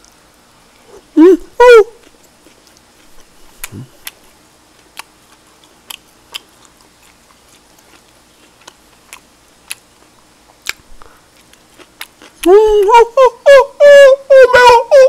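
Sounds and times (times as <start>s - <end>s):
person chewing with mouth clicks: 2.0s - 12.9s.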